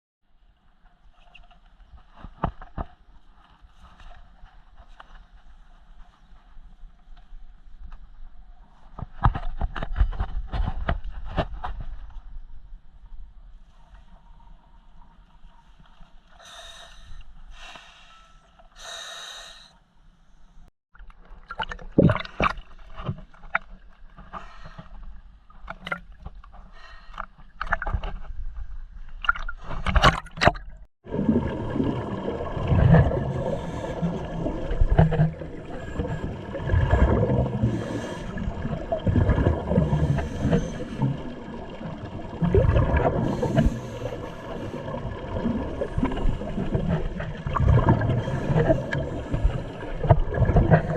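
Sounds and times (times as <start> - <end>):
sharp knocks and clicks underwater: 1.1 - 4.2, 8.9 - 12.3, 20.9 - 50.9
scuba regulator bubbles and breathing: 15.5 - 19.8, 29.2 - 50.9.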